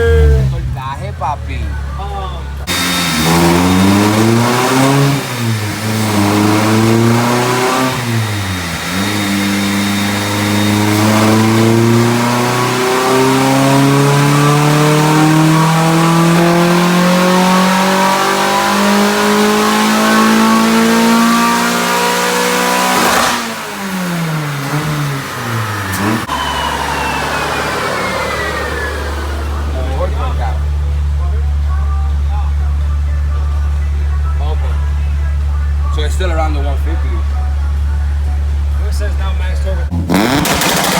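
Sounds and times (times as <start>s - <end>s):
car engine revving on a dyno: 2.6s - 30.9s, 39.9s - 40.9s.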